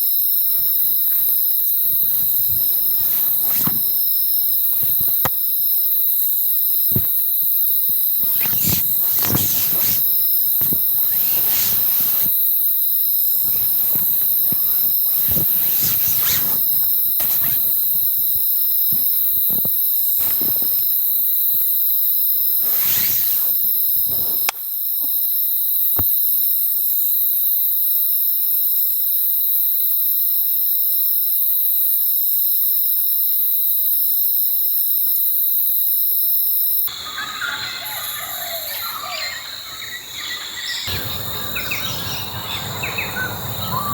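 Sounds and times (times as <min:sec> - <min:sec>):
night insects chorus: 0:00.0 - 0:43.9
birds chirping: 0:08.2 - 0:12.3, 0:36.9 - 0:43.9.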